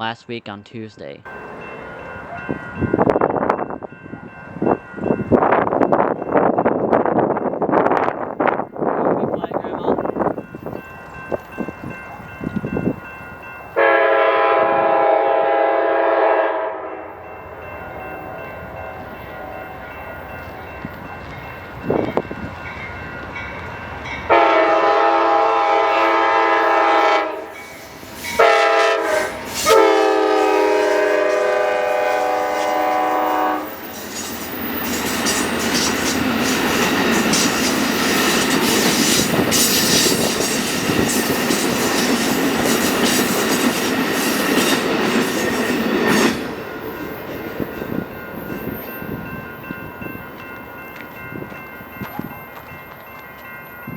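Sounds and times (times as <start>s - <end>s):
train wheels rushing on rail: 1.3s - 53.9s
train horn: 13.8s - 17.2s, 24.3s - 33.8s.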